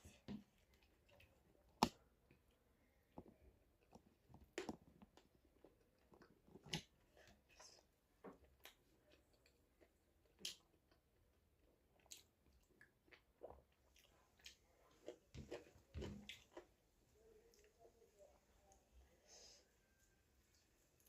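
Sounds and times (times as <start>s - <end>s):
person chewing: 3.8s - 16.7s.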